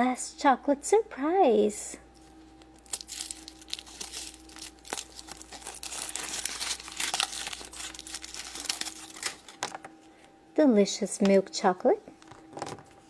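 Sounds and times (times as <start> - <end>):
foil wrapper crinkling: 2.2 - 9.9.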